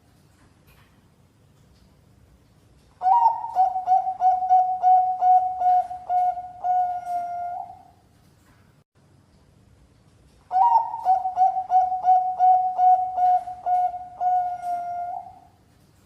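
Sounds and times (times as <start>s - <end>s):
dove cooing: 3.0s - 7.9s, 10.5s - 15.6s.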